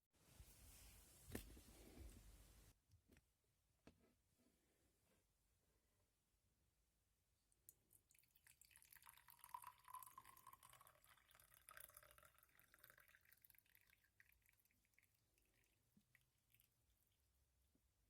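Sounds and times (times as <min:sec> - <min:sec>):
liquid pouring into container: 0:07.7 - 0:17.2.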